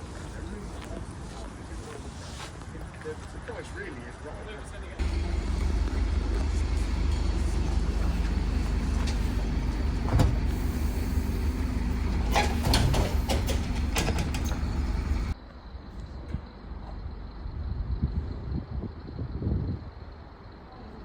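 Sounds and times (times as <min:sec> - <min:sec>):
bus diesel engine droning: 0:05.0 - 0:15.4
sharp clicks and rattles: 0:11.3 - 0:15.4.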